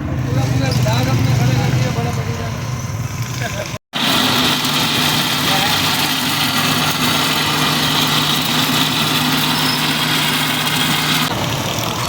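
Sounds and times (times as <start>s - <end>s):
motor humming: 4.0s - 12.0s.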